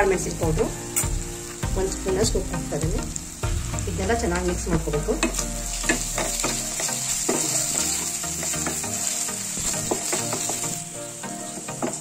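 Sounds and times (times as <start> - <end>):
onions sizzling in oil: 0.0 - 12.0
spatula scraping and tapping pan: 5.2 - 10.8.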